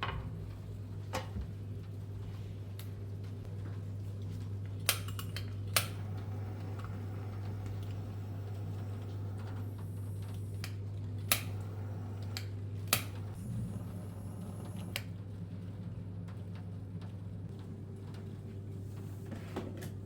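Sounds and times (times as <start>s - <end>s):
steady low hum: 5.6s - 18.2s.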